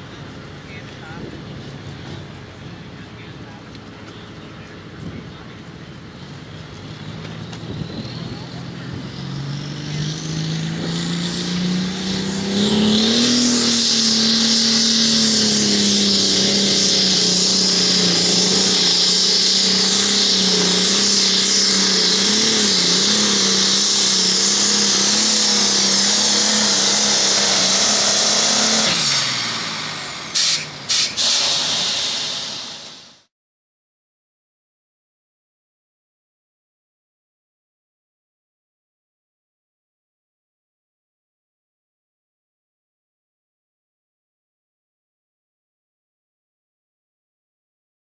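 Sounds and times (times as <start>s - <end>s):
diesel engine at full throttle: 0.0s - 33.3s
loud high hiss: 13.8s - 33.3s.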